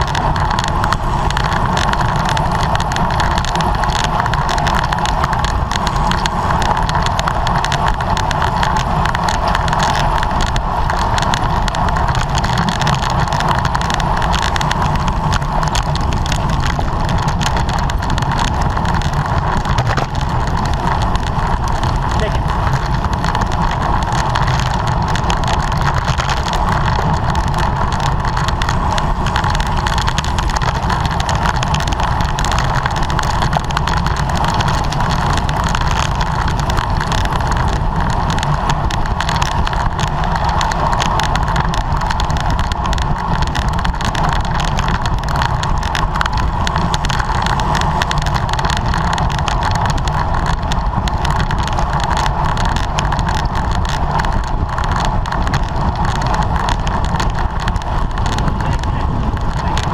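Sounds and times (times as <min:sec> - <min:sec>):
wind rushing: 0:00.0 - 0:44.2
bicycle road noise: 0:00.0 - 0:59.9
wind buffeting microphone: 0:00.0 - 0:59.9.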